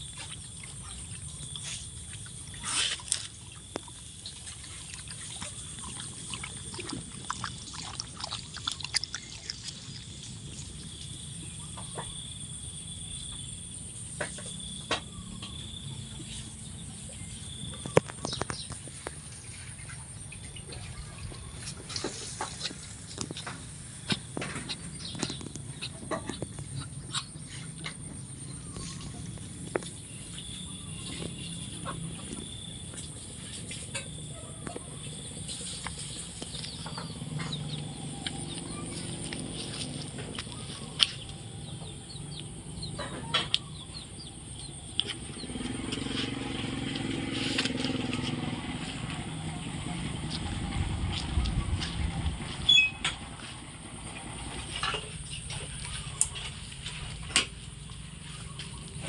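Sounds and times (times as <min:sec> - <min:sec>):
steady low hum: 0:00.0 - 0:59.0
animal calls: 0:19.6 - 0:56.7.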